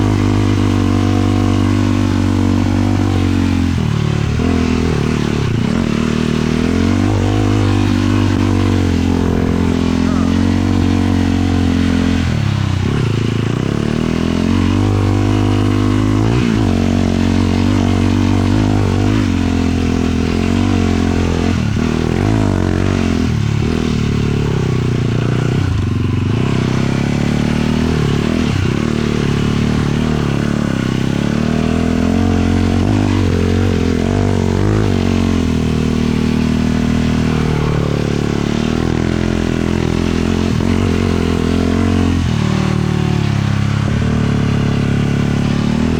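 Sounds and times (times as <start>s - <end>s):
quad engine revving: 0.0s - 45.9s.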